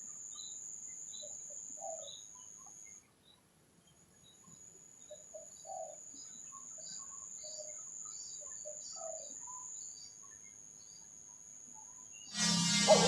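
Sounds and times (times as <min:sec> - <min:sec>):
high insect whine: 0:00.0 - 0:02.7, 0:05.6 - 0:13.0
bird chirps: 0:04.2 - 0:11.1, 0:11.8 - 0:13.0.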